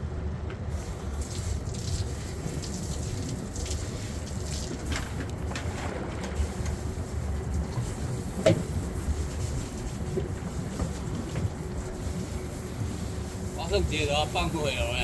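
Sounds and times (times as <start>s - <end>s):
boat engine running: 0.0s - 15.0s
wind: 0.0s - 15.0s
water noise: 0.8s - 15.0s.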